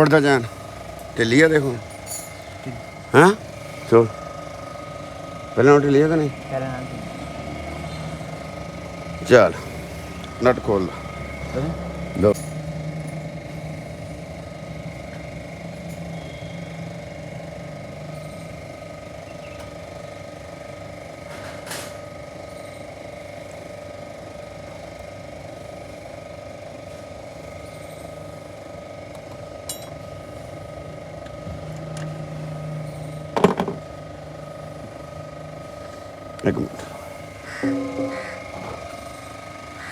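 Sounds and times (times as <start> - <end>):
steady background hum: 0.0 - 39.9
sharp metal clank: 37.6 - 38.8.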